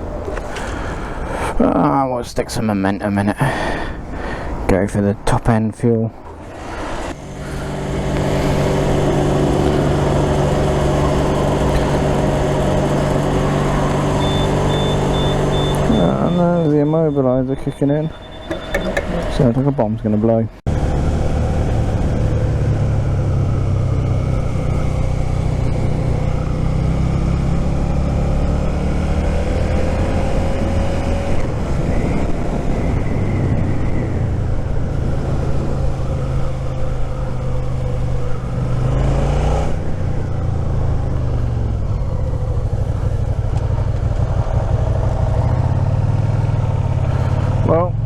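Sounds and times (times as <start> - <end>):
motorcycle engine running: 6.5 - 16.8, 20.7 - 48.0
wind noise: 26.8 - 45.8.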